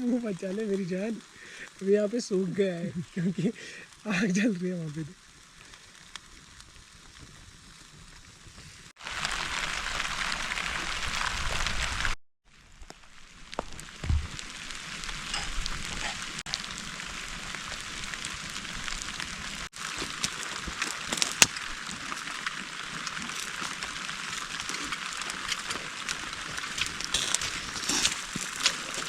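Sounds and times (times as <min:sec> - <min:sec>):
campfire crackling and snapping: 0:00.0 - 0:29.0
rain falling: 0:00.0 - 0:29.0.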